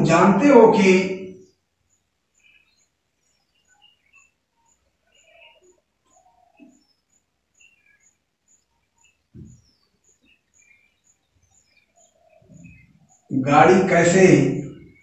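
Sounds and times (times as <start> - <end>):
faint birds chirping: 0.0 - 15.0
low thump: 9.3 - 9.6.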